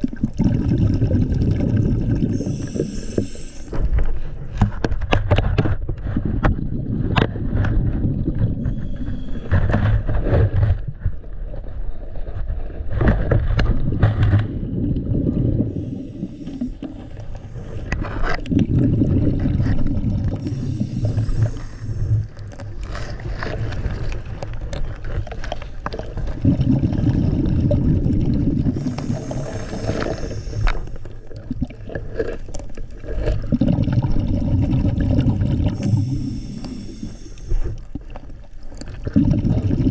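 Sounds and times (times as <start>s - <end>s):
exhaled bubbles gurgling underwater: 0.0s - 39.9s
regulator inhales: 2.3s - 4.0s, 8.6s - 9.8s, 15.7s - 18.0s, 20.4s - 22.4s, 28.8s - 31.1s, 35.8s - 37.9s.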